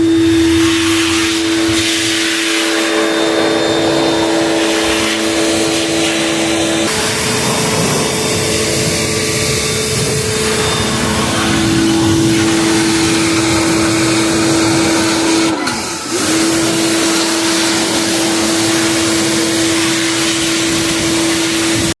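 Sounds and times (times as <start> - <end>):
electric motor humming: 0.0 - 22.0.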